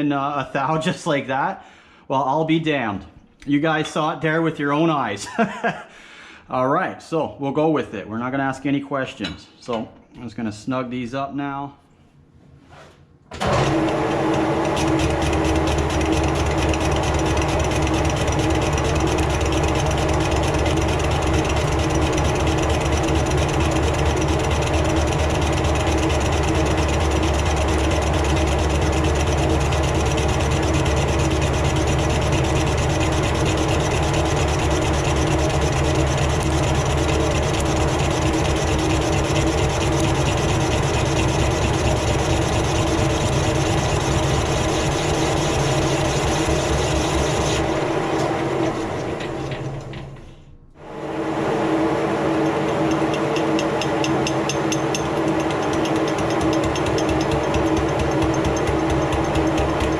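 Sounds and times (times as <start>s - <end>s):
lathe motor hum: 13.4s - 50.2s, 50.8s - 59.9s
tool scraping metal workpiece: 33.1s - 47.7s.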